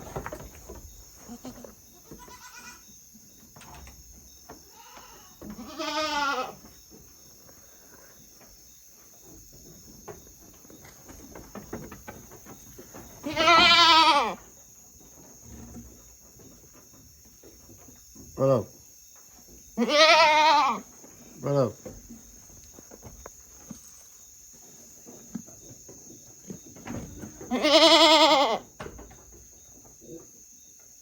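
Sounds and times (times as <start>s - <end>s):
goats bleating: 1.3s - 2.8s, 4.7s - 6.6s, 13.2s - 14.4s, 19.8s - 20.8s, 27.5s - 28.6s.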